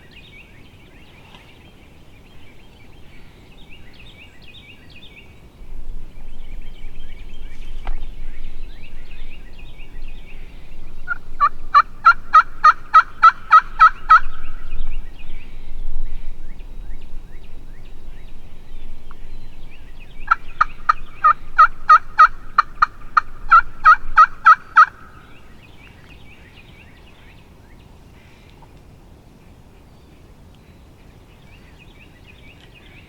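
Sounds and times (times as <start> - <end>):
turkey yelping: 11.1 - 14.2, 20.3 - 25.1.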